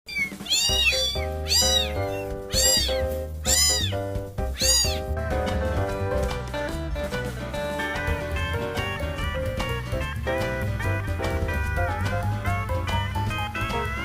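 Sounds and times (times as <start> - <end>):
cat meowing: 0.1 - 5.1
background music with bass: 0.5 - 14.0.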